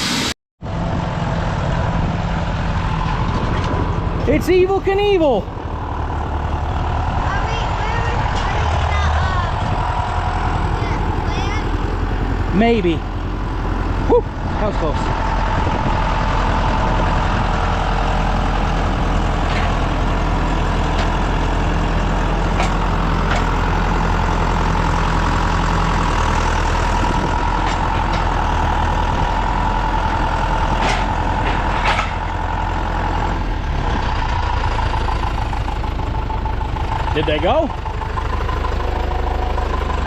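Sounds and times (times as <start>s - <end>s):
tractor engine running: 0.6s - 40.0s.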